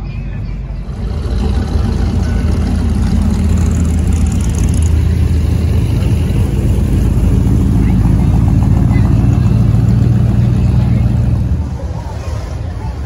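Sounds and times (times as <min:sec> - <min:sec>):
car engine running: 0:00.7 - 0:12.1.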